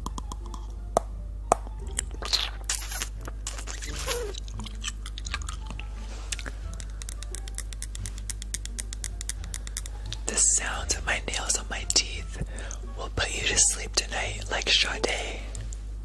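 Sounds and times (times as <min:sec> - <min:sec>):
fingernails clicking on crowns: 0:00.0 - 0:02.9, 0:03.5 - 0:10.3.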